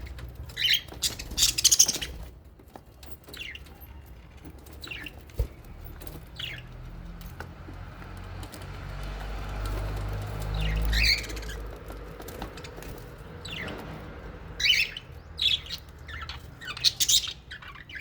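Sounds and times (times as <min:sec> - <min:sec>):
parrots chirping: 0:00.4 - 0:02.3, 0:03.2 - 0:04.1, 0:04.8 - 0:05.6, 0:06.3 - 0:06.8, 0:10.3 - 0:11.8, 0:12.4 - 0:13.9, 0:14.6 - 0:18.0.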